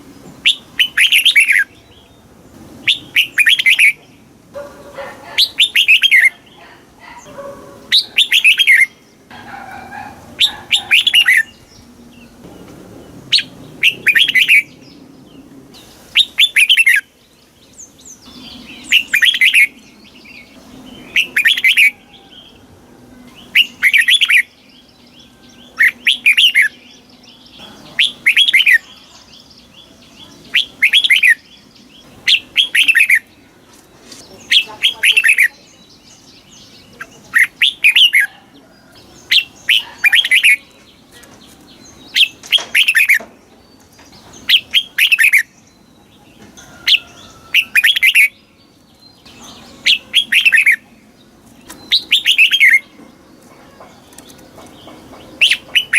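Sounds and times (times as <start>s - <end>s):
bird singing whistled phrases: 2.9s - 4.0s, 5.4s - 6.4s, 7.9s - 9.0s, 13.3s - 14.8s, 23.3s - 26.8s, 28.0s - 29.1s, 30.4s - 31.5s, 32.3s - 33.3s, 51.8s - 52.9s.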